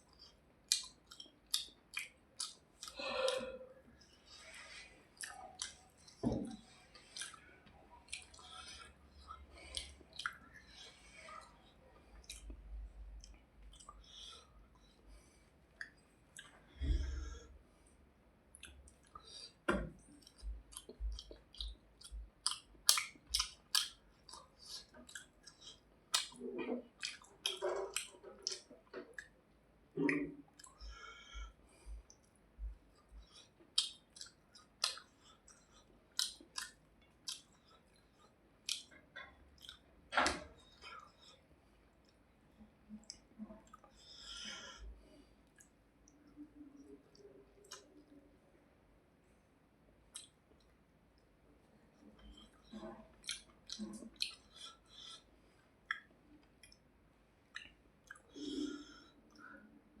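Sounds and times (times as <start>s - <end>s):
person chewing food: 0.0s - 17.5s, 18.5s - 48.2s, 50.1s - 60.0s
person breathing: 2.8s - 5.1s, 16.7s - 18.0s, 30.8s - 32.1s, 43.9s - 45.4s, 58.3s - 59.8s.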